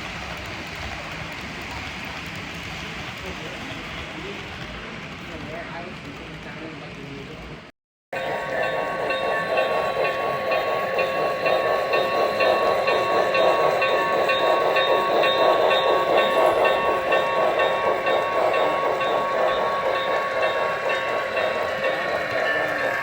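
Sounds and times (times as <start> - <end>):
model train whine: 8.2 - 23.0
rapid even ticking: 8.2 - 23.0.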